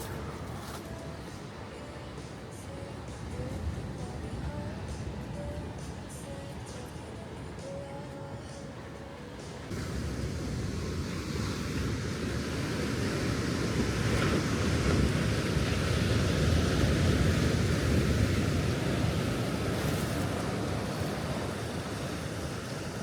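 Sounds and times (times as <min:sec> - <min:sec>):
sea surf washing ashore: 0:00.0 - 0:23.0
wind rumbling on microphone: 0:09.7 - 0:23.0.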